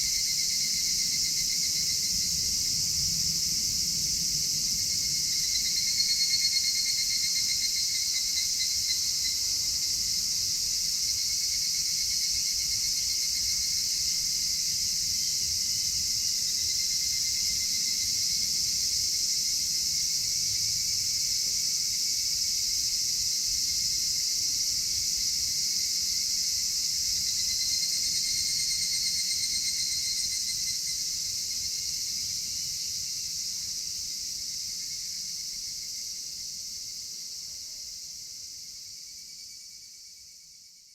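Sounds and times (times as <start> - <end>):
insect pulsed trill: 0.0 - 40.9
crickets shrilling: 22.1 - 39.7.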